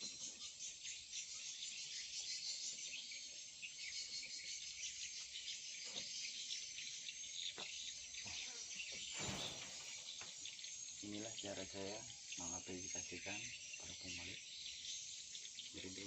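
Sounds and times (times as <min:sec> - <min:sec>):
high-pitched insect-like chirping: 0:00.0 - 0:16.0.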